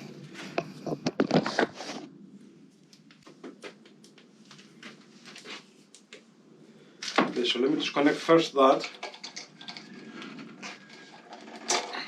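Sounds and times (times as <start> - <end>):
clicks and knocks of small parts: 8.7 - 9.9.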